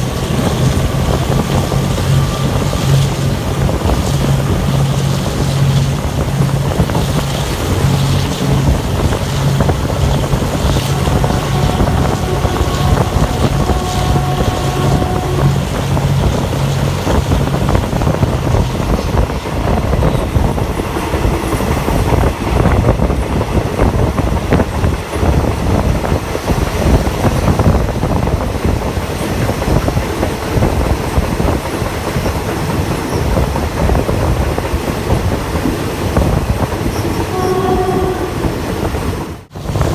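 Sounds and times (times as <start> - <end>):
low pulsing hum: 0.0 - 19.3
train wheels rumbling on rails: 0.0 - 39.9
wind noise: 0.0 - 39.9.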